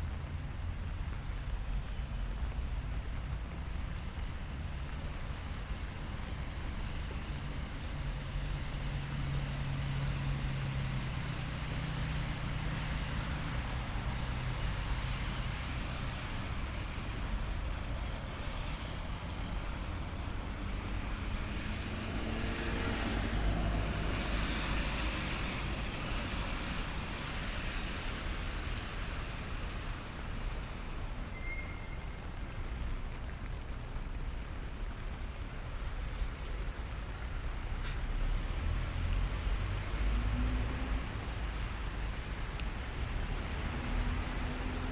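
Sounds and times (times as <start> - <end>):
rain hiss on wet street: 0.0 - 44.9
car passing close: 20.8 - 28.0.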